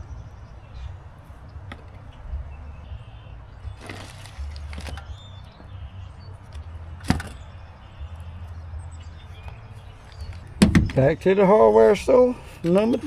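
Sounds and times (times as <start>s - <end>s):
sharp knock: 10.6s - 11.0s.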